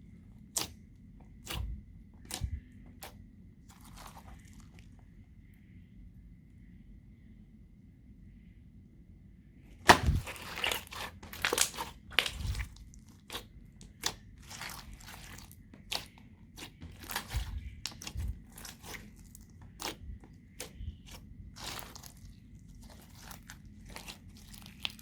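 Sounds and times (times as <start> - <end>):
slime crackling and crunching: 3.7 - 4.9, 9.8 - 25.0.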